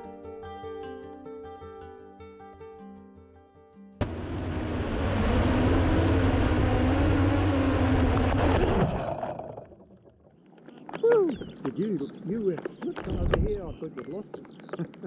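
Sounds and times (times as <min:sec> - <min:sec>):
steady hum: 0:04.0 - 0:09.7
wind buffeting microphone: 0:11.2 - 0:14.2.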